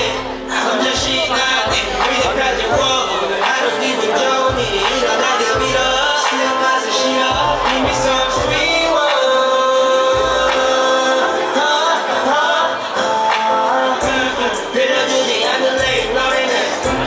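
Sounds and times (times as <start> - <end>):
person singing: 0.0 - 17.0
pop hip-hop backing track: 0.0 - 17.0
heavy bass hits: 5.6 - 6.1.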